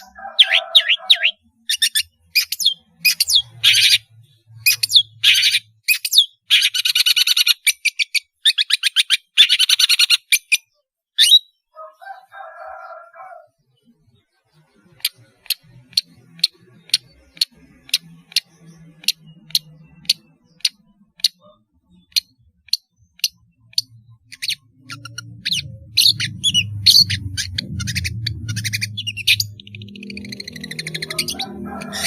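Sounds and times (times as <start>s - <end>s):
bird singing sharp notes: 13.8s - 32.0s.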